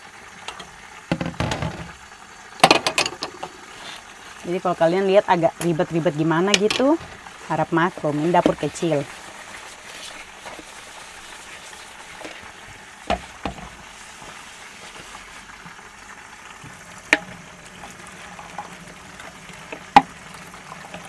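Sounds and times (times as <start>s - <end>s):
chicken sizzling in oil: 0.0s - 21.0s
dishes knocking at sink: 1.1s - 1.9s, 2.6s - 3.6s, 13.1s - 13.7s.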